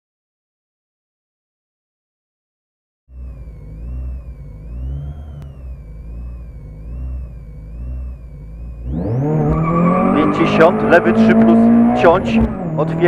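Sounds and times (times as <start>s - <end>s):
rally car engine revving: 3.1s - 13.0s.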